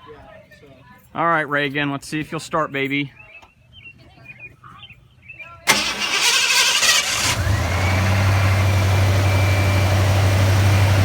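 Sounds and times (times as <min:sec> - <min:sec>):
car engine starting and idling: 0:05.7 - 0:11.0.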